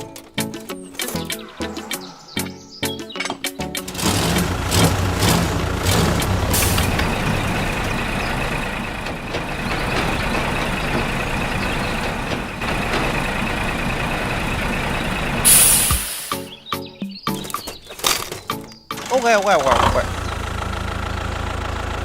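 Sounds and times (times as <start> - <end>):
machine running: 3.8 - 16.4
short loud hiss: 15.5 - 16.5.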